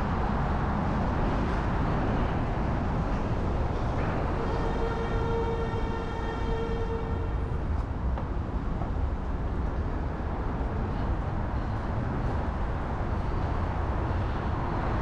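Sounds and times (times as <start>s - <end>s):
city traffic rumble: 0.0s - 15.0s
vehicle horn: 4.0s - 7.6s.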